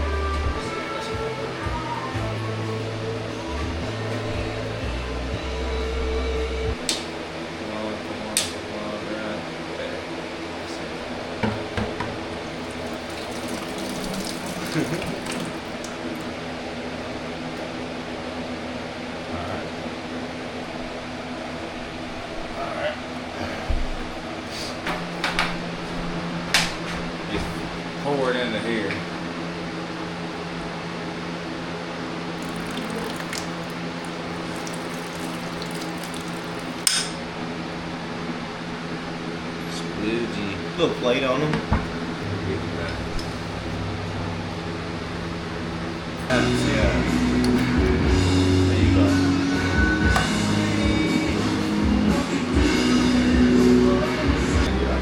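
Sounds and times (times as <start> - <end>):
steady hum: 0.0 - 55.0
liquid pouring into container: 12.6 - 16.3, 32.4 - 36.9.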